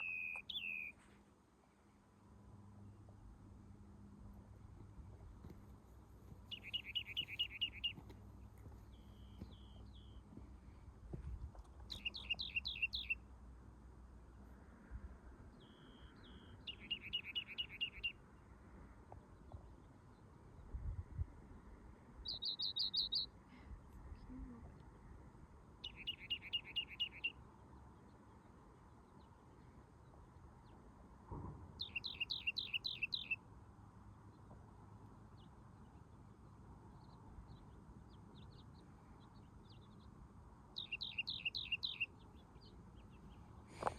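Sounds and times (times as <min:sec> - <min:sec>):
songbird chirping: 0:00.0 - 0:01.3, 0:04.8 - 0:14.7, 0:15.4 - 0:20.8, 0:22.2 - 0:25.0, 0:25.8 - 0:43.9.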